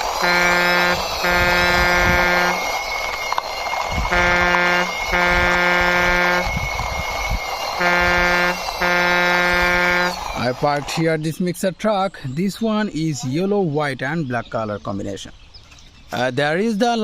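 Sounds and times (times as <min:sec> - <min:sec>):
truck horn honking: 0:00.0 - 0:02.8, 0:04.0 - 0:06.7, 0:07.7 - 0:10.4.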